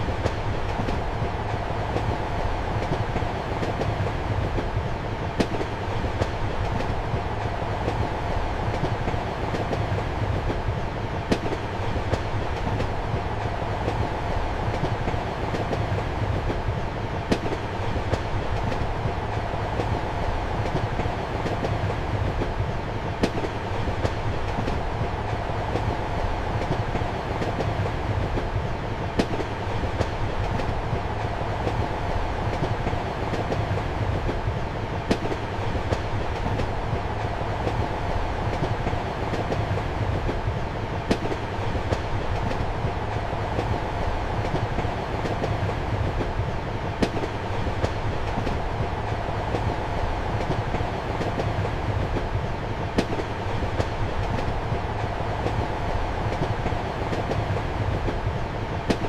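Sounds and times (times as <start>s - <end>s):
train rumble and hum: 0.0s - 59.0s
wheels clicking over rail joints: 20.6s - 59.0s.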